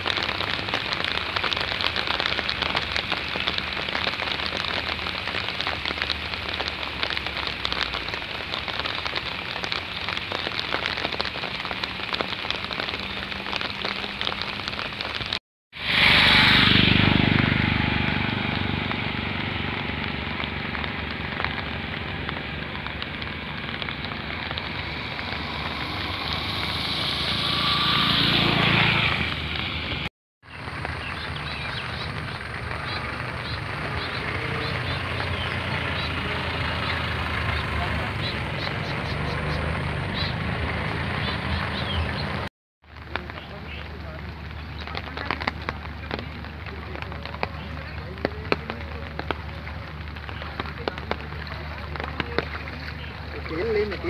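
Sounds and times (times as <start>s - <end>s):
rain pattering on water: 0.0s - 15.4s, 16.0s - 54.0s
rushing noise: 6.3s - 42.5s.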